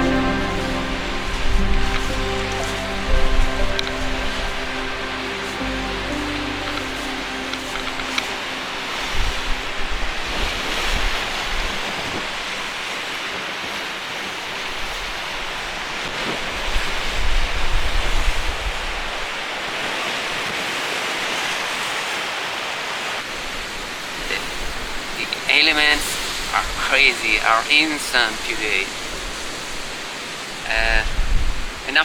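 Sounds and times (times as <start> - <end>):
surf crashing: 0.0 - 17.6.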